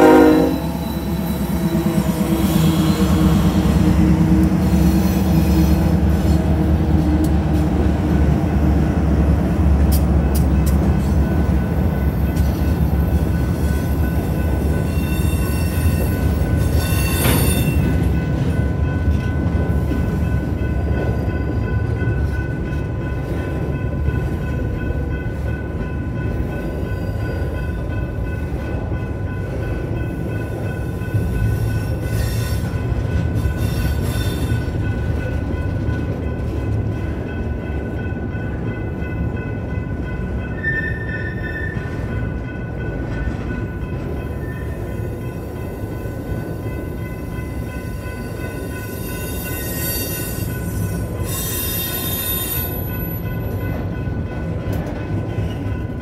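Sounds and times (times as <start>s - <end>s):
crossing bell ringing: 0.0s - 56.0s
diesel locomotive engine: 0.0s - 56.0s
wheel squeal: 0.6s - 3.5s, 14.9s - 17.9s
steel wheels clattering on rails: 0.6s - 56.0s.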